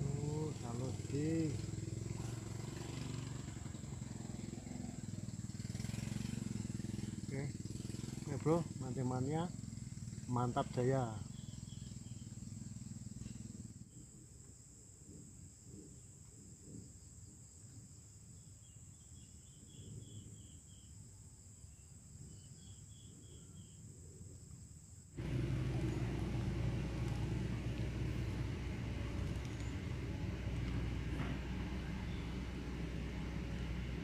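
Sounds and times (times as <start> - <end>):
insect drone: 0.0 - 34.0
bird chirps: 11.2 - 12.5, 31.6 - 32.8
loud low rumble: 25.2 - 34.0.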